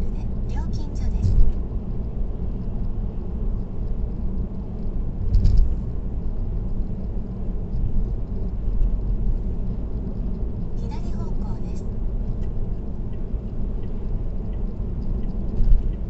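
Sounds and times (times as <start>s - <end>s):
car road and tyre rumble: 0.0s - 16.0s.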